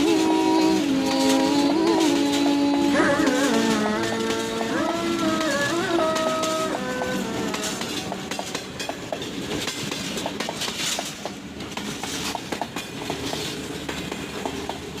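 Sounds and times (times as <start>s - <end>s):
train rolling noise: 0.0s - 15.0s
train wheels clicking over rail joints: 0.0s - 15.0s.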